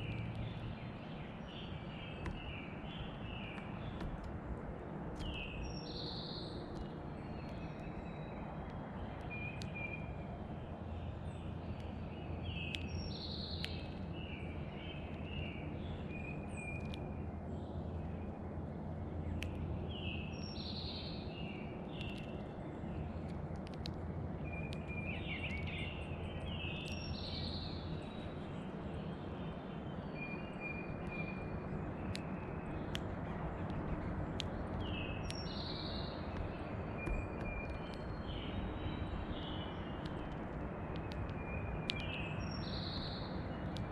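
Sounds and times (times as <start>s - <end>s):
low background rumble: 0.0s - 43.9s
sparrow singing whistled notes: 5.2s - 10.2s, 11.2s - 17.2s, 19.9s - 22.5s, 24.4s - 33.0s, 34.4s - 43.9s
sharp clicks: 6.6s - 10.0s, 11.7s - 14.3s, 16.1s - 17.1s, 21.8s - 25.8s, 30.9s - 43.9s.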